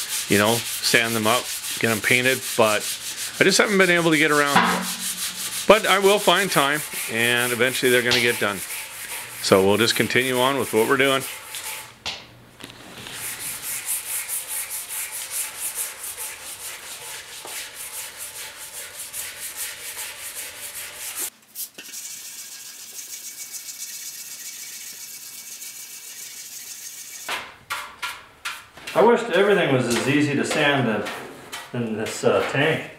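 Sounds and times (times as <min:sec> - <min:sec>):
sandpaper rubbing back and forth: 0:00.0 - 0:11.9, 0:13.1 - 0:27.3.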